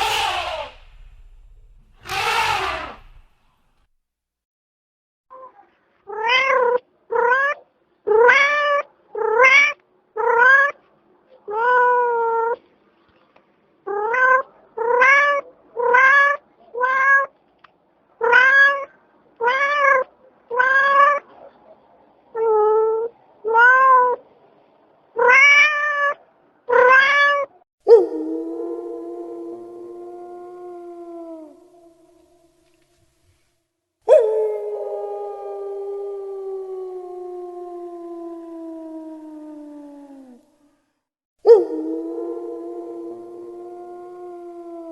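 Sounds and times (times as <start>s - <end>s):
cat meowing: 0.0s - 3.2s, 6.1s - 10.8s, 25.2s - 27.5s.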